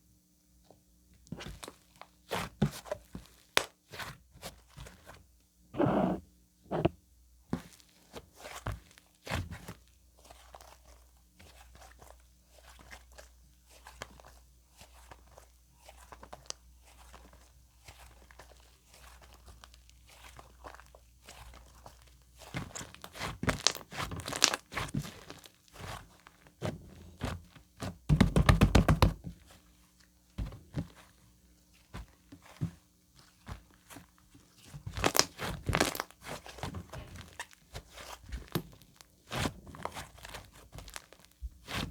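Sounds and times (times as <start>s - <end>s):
slime squeezed by hand: 5.8s - 6.9s.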